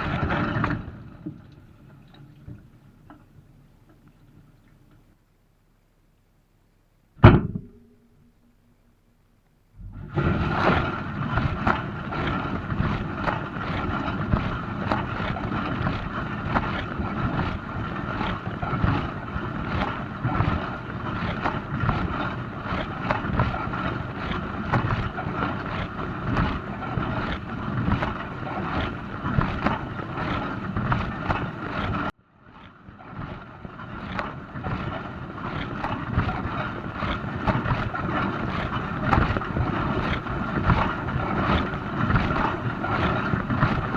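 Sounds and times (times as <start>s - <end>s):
pump hum: 0.0s - 5.8s, 7.2s - 32.1s, 33.3s - 43.9s
water spraying in dishwasher: 35.6s - 43.9s.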